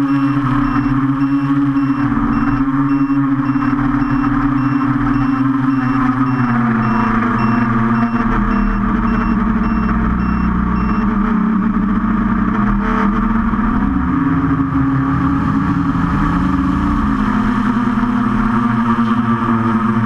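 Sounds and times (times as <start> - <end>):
high beeps: 0.0 - 11.2
drone motors whining: 0.0 - 20.0.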